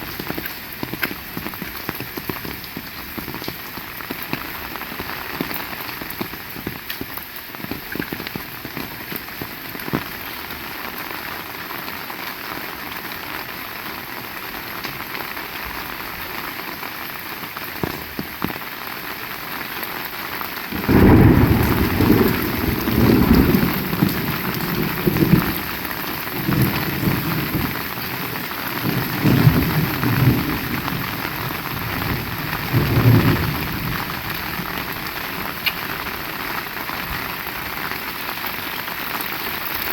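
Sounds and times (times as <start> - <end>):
heavy rain falling: 0.0 - 39.9
thunder rumbling: 20.7 - 37.3.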